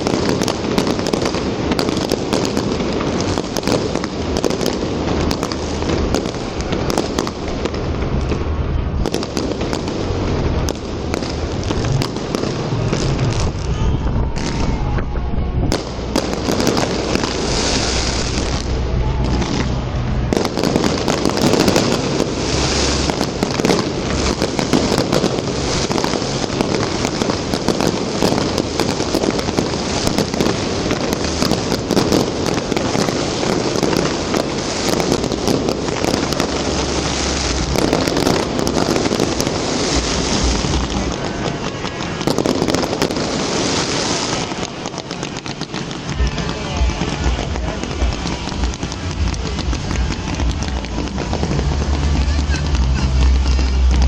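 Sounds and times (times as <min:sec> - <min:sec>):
fireworks cracking and popping: 0:00.0 - 0:54.0
low firework booms: 0:00.0 - 0:54.0.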